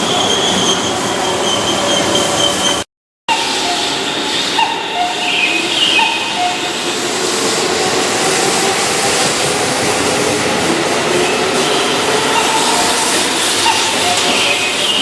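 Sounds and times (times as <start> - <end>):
train rolling: 0.0 - 15.0
high squealing tones: 11.6 - 15.0.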